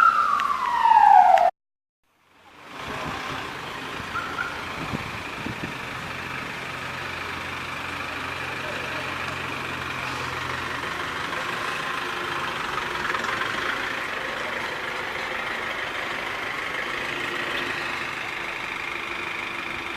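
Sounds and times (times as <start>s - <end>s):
vehicle engines idling: 2.1s - 19.9s.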